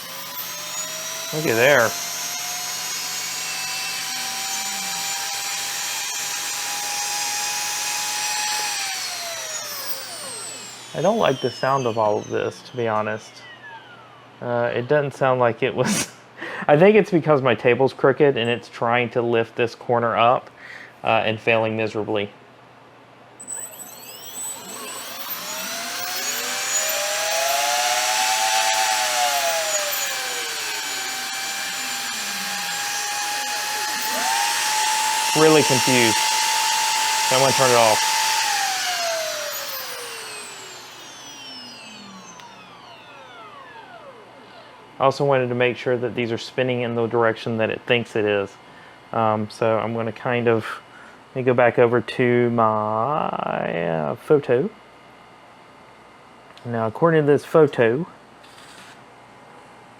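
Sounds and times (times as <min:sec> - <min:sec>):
electric motors whining: 0:00.0 - 0:14.6, 0:23.4 - 0:45.5.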